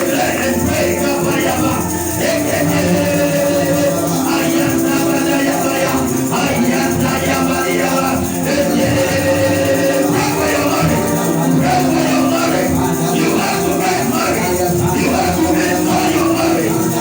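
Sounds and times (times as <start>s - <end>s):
keyboard chords: 0.0s - 17.0s
light rattling percussion: 0.0s - 17.0s
many voices praying aloud: 0.0s - 17.0s.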